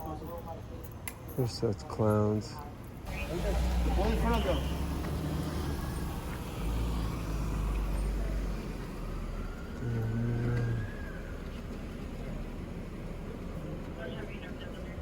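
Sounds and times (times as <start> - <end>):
street traffic: 0.0 - 15.0
vehicle rumbling past: 3.1 - 15.0.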